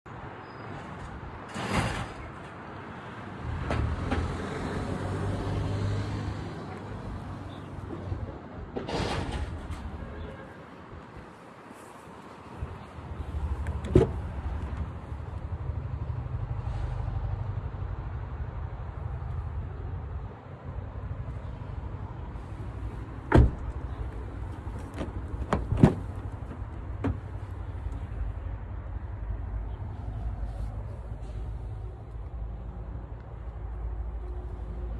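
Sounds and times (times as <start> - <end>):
car doors knocking and clicking: 23.3 - 23.8, 24.8 - 27.3.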